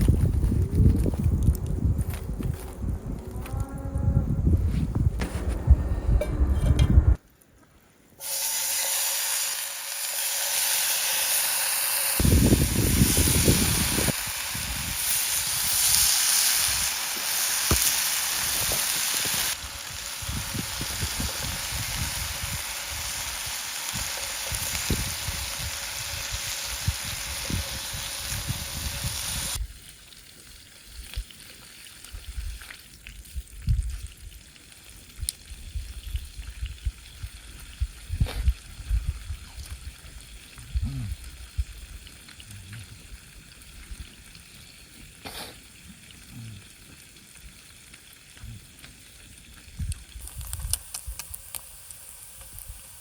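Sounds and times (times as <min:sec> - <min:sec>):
food sizzling in a frying pan: 0:08.2 - 0:29.6, 0:49.0 - 0:53.0
scattered crackles and clicks: 0:46.8 - 0:53.0.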